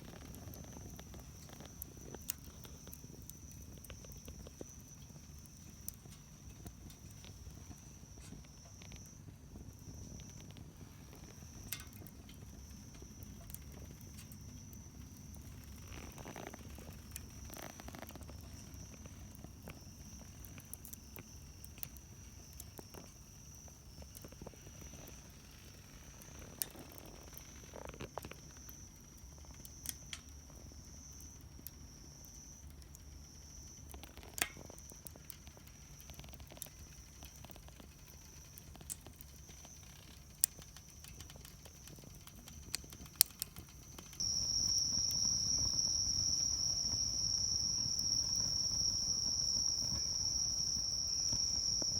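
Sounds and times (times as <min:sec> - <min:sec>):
insects chirring: 0:00.0 - 0:51.9
wood fire crackling: 0:00.0 - 0:51.9
close insect chirr: 0:43.6 - 0:51.9.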